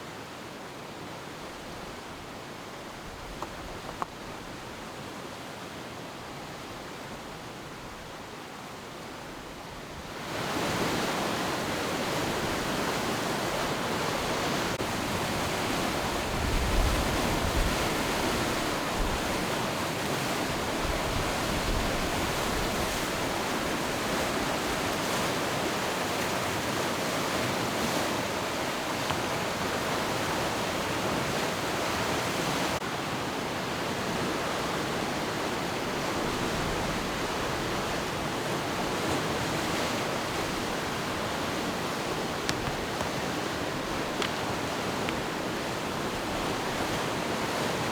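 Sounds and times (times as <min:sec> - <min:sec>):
river rapids rushing: 0:10.3 - 0:47.9.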